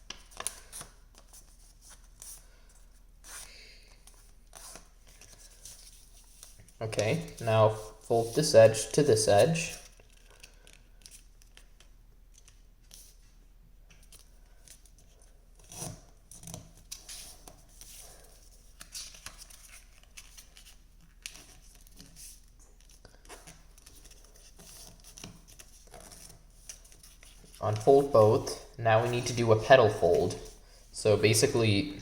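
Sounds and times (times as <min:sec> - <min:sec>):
paper rustling and scraping: 0:14.8 - 0:31.4.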